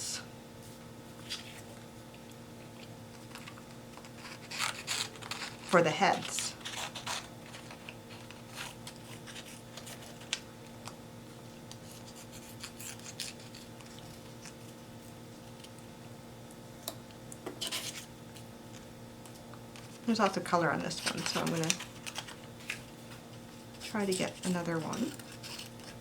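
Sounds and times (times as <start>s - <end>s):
paper rustling: 1.2s - 1.8s, 3.3s - 10.4s, 19.8s - 26.0s
scissors snipping paper: 3.3s - 11.0s, 11.7s - 14.6s, 20.2s - 22.9s, 23.8s - 26.0s.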